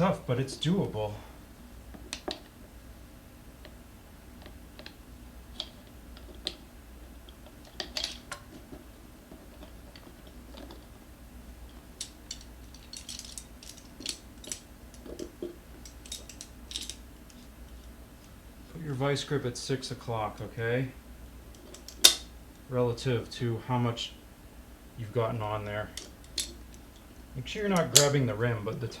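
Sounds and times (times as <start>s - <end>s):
steady low hum: 0.0s - 29.0s
metal tools clicking on wheel rim: 11.7s - 17.4s.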